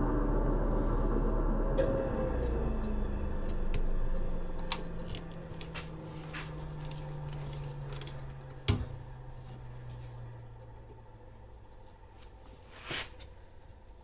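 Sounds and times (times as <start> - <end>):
machine motor spinning down: 0.0 - 11.0.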